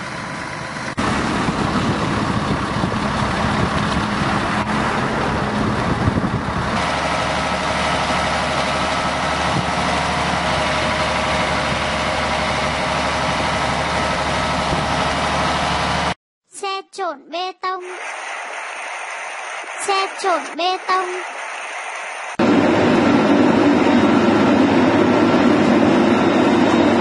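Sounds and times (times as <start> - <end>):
excavator diesel engine running: 0.0 - 16.2, 17.8 - 27.0
steady higher whine: 17.9 - 27.0.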